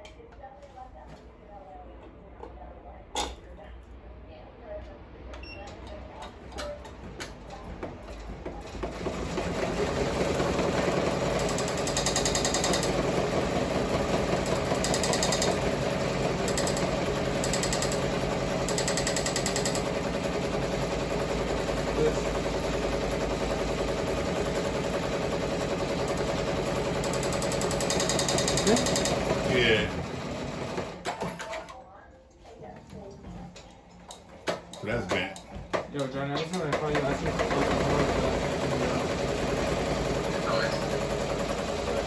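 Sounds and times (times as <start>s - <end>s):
embroidery machine stitching: 8.6s - 31.5s, 36.4s - 42.0s.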